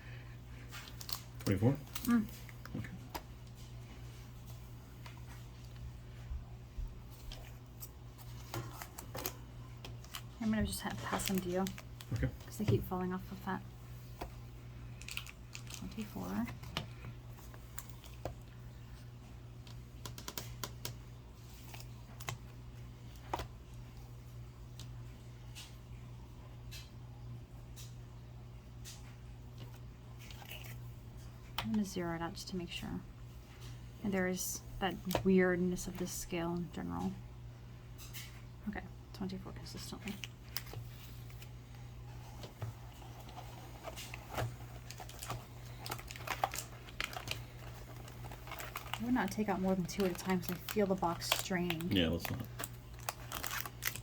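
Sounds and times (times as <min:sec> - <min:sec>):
faint steady low hum: 0:00.0 - 0:54.0
foil packs clicking and crinkling: 0:00.6 - 0:03.6, 0:07.2 - 0:13.4, 0:14.9 - 0:18.6, 0:19.6 - 0:24.0, 0:40.0 - 0:54.0
foil packs rustling: 0:10.0 - 0:13.4, 0:42.2 - 0:54.0.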